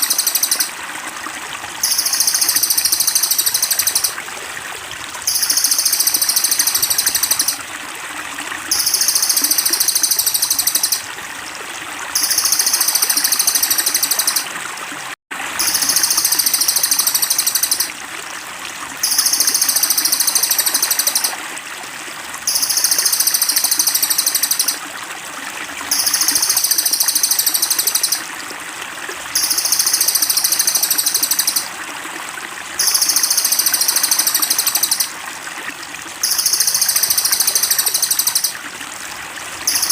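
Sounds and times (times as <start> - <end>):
high rapid pulsing bird trill: 0.0 - 0.7, 1.8 - 4.2, 5.3 - 7.6, 8.7 - 11.0, 12.2 - 14.4, 15.6 - 17.9, 19.0 - 21.3, 22.5 - 24.8, 25.9 - 28.2, 29.4 - 31.7, 32.8 - 35.1, 36.2 - 38.6, 39.7 - 39.9
trickle of running water: 0.0 - 39.9.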